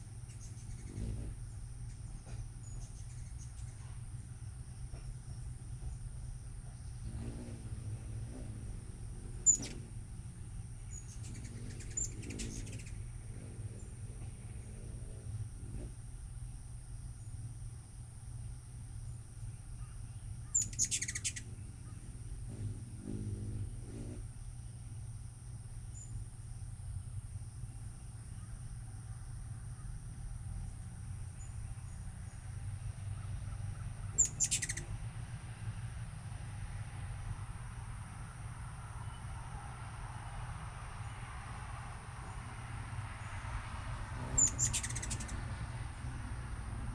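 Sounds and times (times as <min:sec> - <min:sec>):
hummingbird chattering: 0:00.2 - 0:04.5, 0:05.2 - 0:17.7, 0:18.4 - 0:25.3, 0:26.8 - 0:35.2, 0:44.2 - 0:46.9
faint high bird tweets: 0:00.3 - 0:04.2, 0:04.8 - 0:15.3, 0:18.4 - 0:25.2, 0:25.9 - 0:26.3, 0:28.0 - 0:35.1, 0:39.0 - 0:39.4, 0:44.3 - 0:45.4
hummingbird high chip notes: 0:06.0 - 0:15.6, 0:18.5 - 0:25.0, 0:34.1 - 0:35.1, 0:44.3 - 0:45.4.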